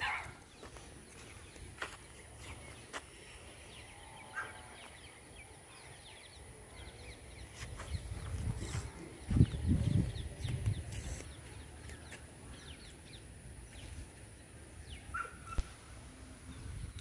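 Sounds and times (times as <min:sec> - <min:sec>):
distant birds chirping: 0:00.0 - 0:17.0
low wind rumble: 0:05.2 - 0:11.1, 0:14.4 - 0:17.0.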